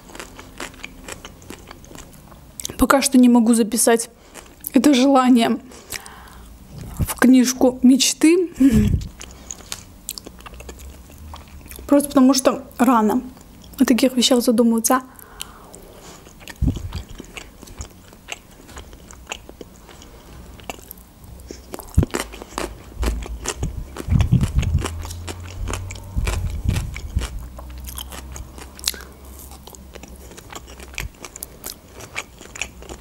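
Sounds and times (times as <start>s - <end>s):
wet chewing clicks: 9.0s - 12.0s, 15.3s - 33.0s
low thuds: 25.6s - 27.5s.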